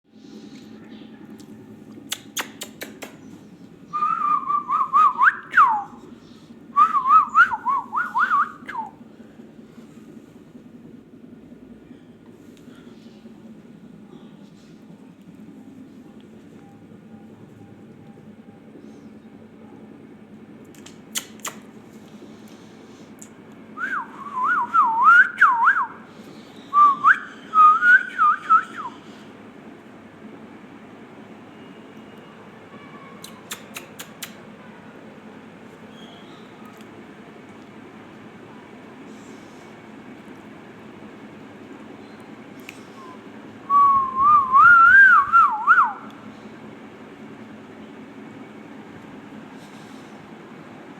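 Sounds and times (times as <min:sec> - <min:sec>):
sharp clicks: 0:02.1 - 0:03.4, 0:20.7 - 0:21.7
person whistling a tune: 0:06.8 - 0:08.9, 0:23.8 - 0:26.0, 0:26.7 - 0:29.0, 0:43.0 - 0:46.1.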